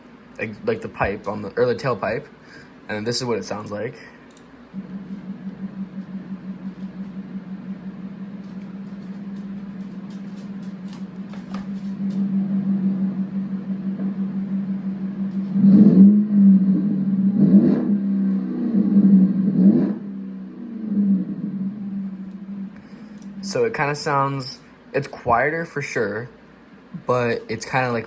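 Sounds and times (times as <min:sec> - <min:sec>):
truck exhaust droning: 0:00.0 - 0:25.2.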